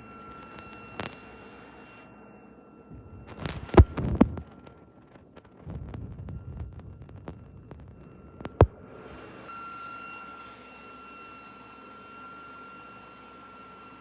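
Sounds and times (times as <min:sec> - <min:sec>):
printer high whine: 0:00.0 - 0:05.0, 0:07.4 - 0:14.0.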